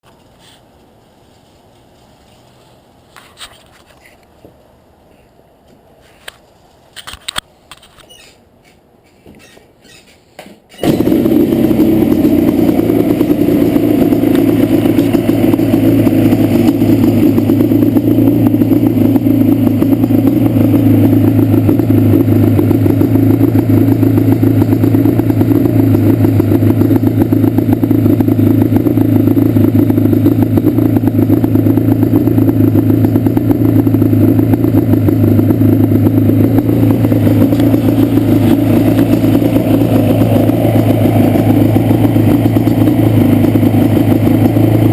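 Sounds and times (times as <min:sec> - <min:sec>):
two-stroke engine idling: 0:10.8 - 0:44.9.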